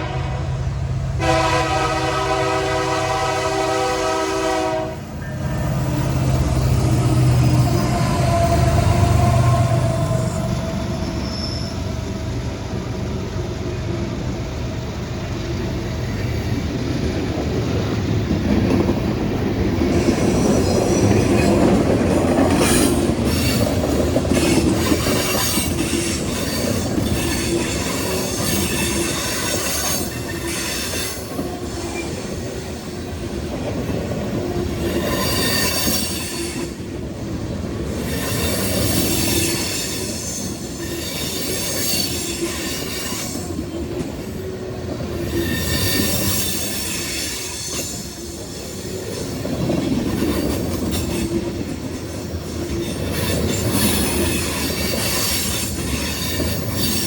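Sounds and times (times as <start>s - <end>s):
freight train cars rumbling past: 0.0s - 57.0s
steel wheel squeal: 5.2s - 12.0s, 22.5s - 32.3s, 34.6s - 36.8s, 38.0s - 43.8s, 45.1s - 49.2s, 52.7s - 57.0s
wheels clacking over rails: 16.5s - 37.2s.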